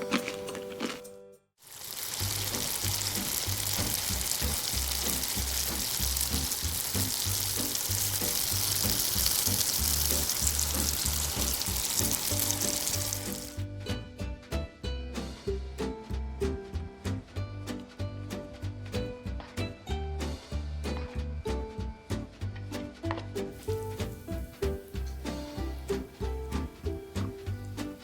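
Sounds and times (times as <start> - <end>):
food sizzling in hot oil: 1.6 - 13.6, 23.5 - 28.0
background music with bass beat: 3.6 - 28.0.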